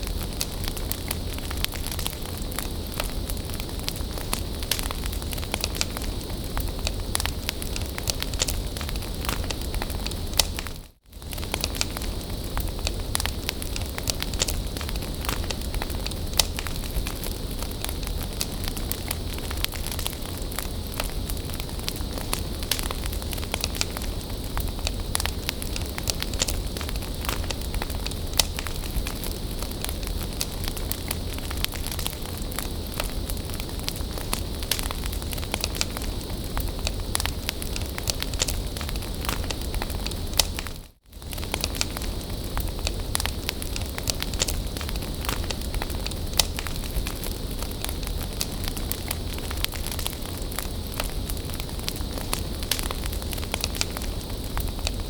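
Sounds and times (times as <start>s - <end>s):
bonfire crackling and hissing: 0.0s - 55.0s.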